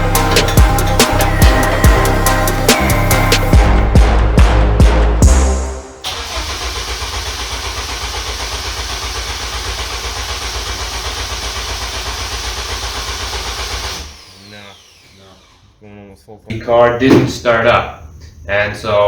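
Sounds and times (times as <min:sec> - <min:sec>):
drum-beat music: 0:00.0 - 0:06.0
engine cranking on starter: 0:06.0 - 0:15.8.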